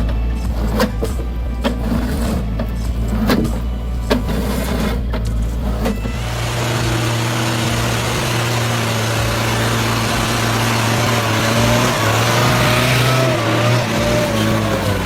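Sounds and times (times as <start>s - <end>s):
heavy machine engine running: 0.0s - 15.0s
wavering whine: 0.0s - 15.0s.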